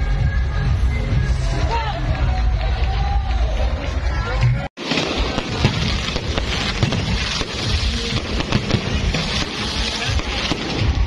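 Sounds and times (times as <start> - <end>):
fireworks crackling: 4.8 - 11.0
low fireworks thumps: 4.8 - 11.0.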